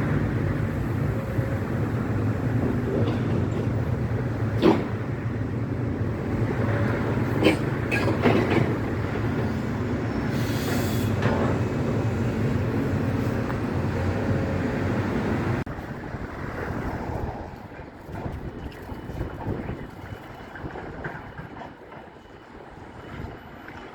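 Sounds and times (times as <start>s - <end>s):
excavator diesel engine rumbling: 0.0s - 15.7s.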